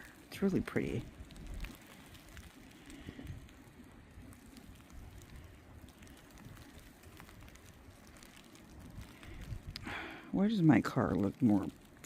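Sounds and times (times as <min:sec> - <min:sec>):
faint hiss: 0:00.0 - 0:12.0
wind rumbling on microphone: 0:00.0 - 0:12.0
faint ticks: 0:01.0 - 0:10.2.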